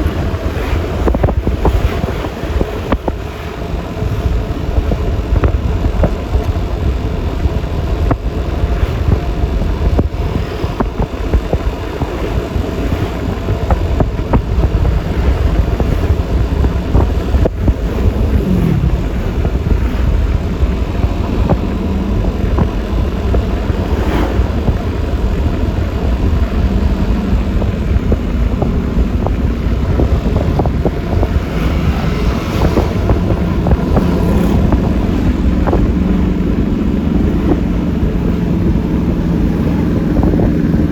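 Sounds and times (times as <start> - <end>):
road noise: 0.0 - 40.9
scooter engine running: 0.0 - 40.9
wind buffeting on microphone: 0.0 - 40.9.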